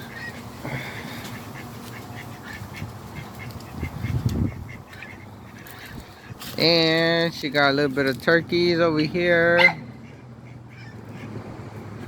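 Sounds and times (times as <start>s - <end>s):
ducks quacking: 0.0s - 11.8s.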